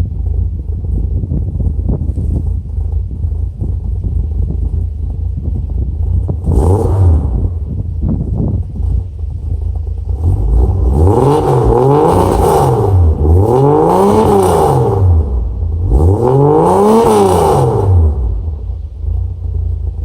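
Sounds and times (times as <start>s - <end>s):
engine revving: 5.7s - 20.0s.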